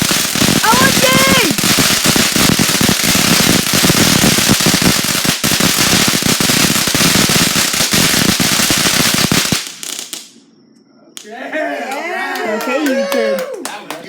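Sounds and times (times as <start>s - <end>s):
firework crackling and banging: 0.0s - 10.4s.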